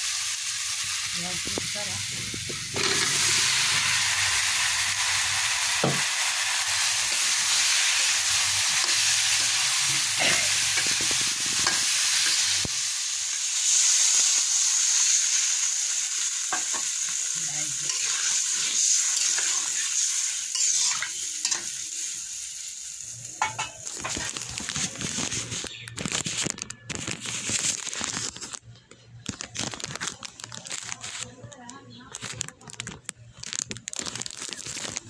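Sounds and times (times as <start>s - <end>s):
water hissing in hot pan: 0.0s - 25.4s
vegetables sizzling in oil: 0.0s - 26.3s
spatula scraping a pan: 20.5s - 21.6s.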